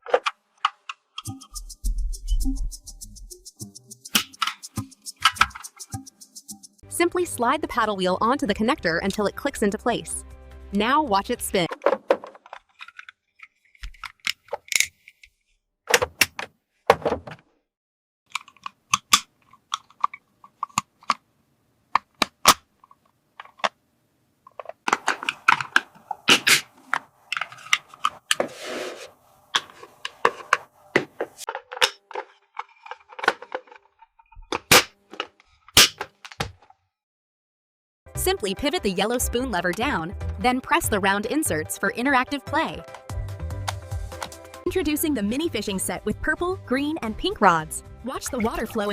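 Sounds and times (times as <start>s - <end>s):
plastic toy pieces clicking: 18.3s - 21.2s.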